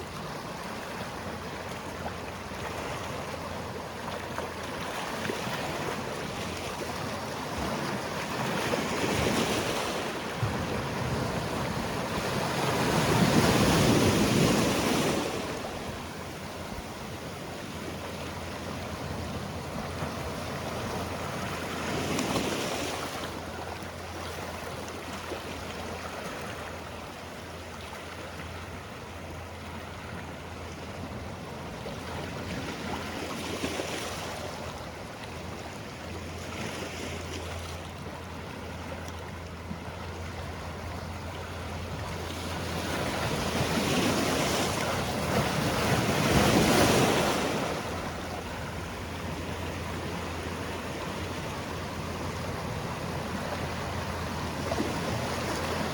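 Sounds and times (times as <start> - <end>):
sea waves washing on shore: 0.0 - 55.9.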